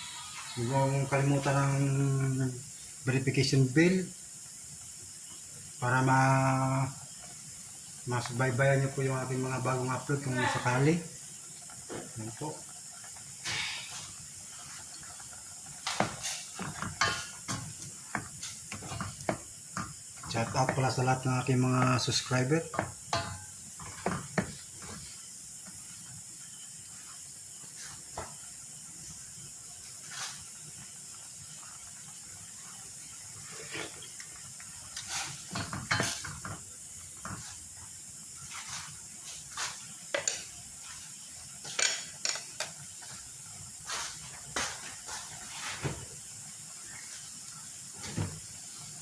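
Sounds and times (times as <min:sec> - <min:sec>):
simmering pot hissing: 0:00.0 - 0:49.0
utensil knocking on a pot: 0:22.7 - 0:24.5.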